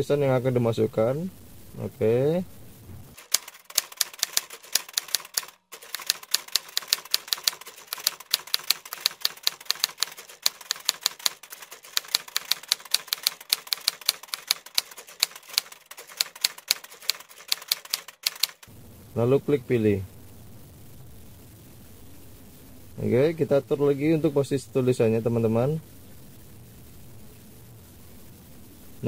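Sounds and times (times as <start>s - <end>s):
phone keyboard typing clicks: 3.2s - 18.7s.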